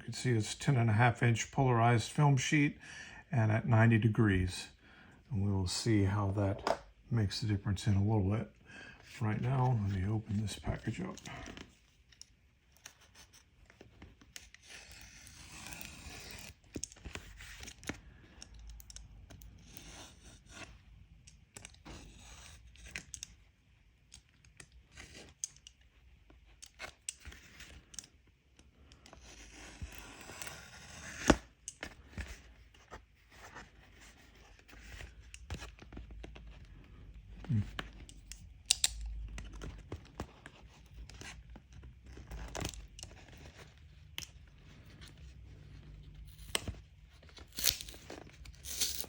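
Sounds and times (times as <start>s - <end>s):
packaging tearing and rustling: 46.2s - 49.0s.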